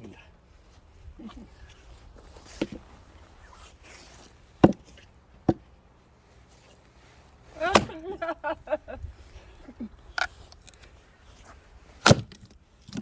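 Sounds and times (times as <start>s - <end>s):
axe striking firewood: 4.6s - 5.7s, 7.6s - 8.0s, 12.0s - 13.0s.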